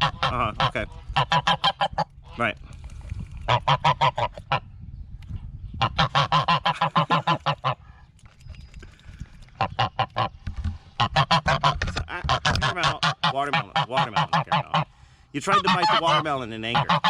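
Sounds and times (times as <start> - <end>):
goose honking: 0.0 - 2.5, 3.5 - 4.6, 5.8 - 7.8, 9.6 - 10.4, 11.0 - 17.0.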